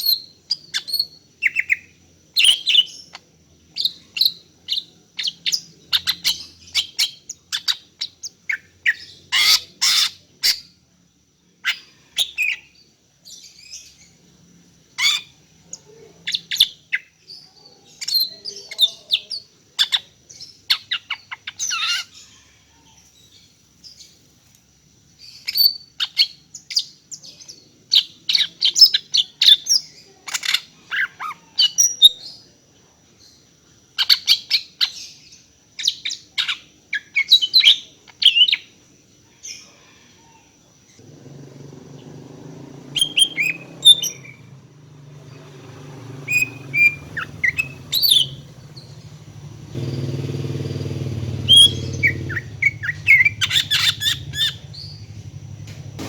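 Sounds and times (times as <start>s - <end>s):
bird chirping and twittering: 0.0s - 10.8s, 11.6s - 14.3s, 14.9s - 24.2s, 25.2s - 32.4s, 40.9s - 56.0s.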